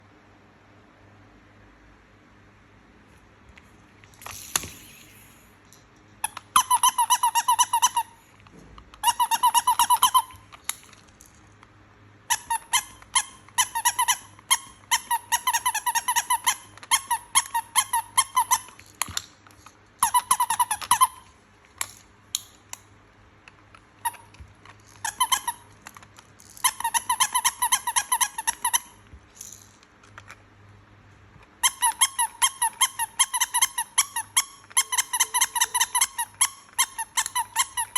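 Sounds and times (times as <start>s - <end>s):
toy squeaking: 6.2s - 8.3s, 9.0s - 10.6s, 12.3s - 22.6s, 24.0s - 29.7s, 31.6s - 37.9s.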